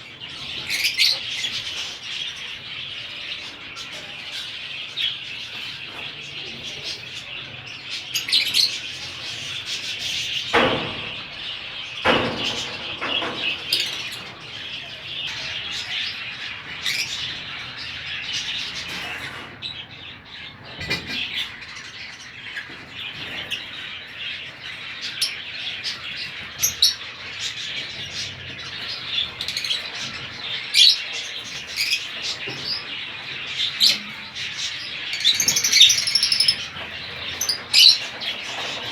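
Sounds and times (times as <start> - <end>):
birds chattering: 0.0 - 38.9
sharp knocks: 10.5 - 14.0.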